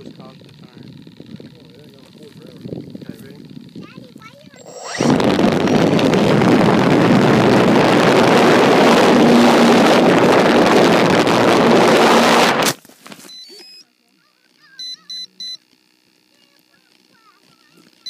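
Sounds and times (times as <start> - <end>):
motor noise: 0.0 - 18.0
wind rushing: 4.6 - 12.7
short high beeps: 13.3 - 13.9, 14.8 - 15.6.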